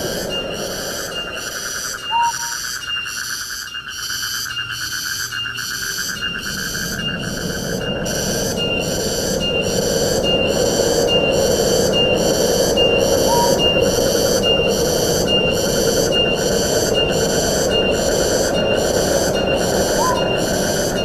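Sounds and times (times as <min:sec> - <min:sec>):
wind rushing through trees: 0:00.0 - 0:03.4, 0:05.4 - 0:21.0
high pulsing call: 0:01.1 - 0:02.8, 0:11.9 - 0:16.4, 0:17.0 - 0:21.0.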